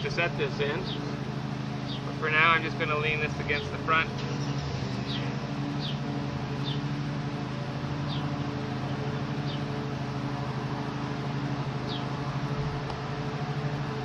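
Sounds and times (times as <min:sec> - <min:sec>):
steady low hum: 0:00.0 - 0:14.0
small bird chirping: 0:06.6 - 0:06.9, 0:08.0 - 0:08.3.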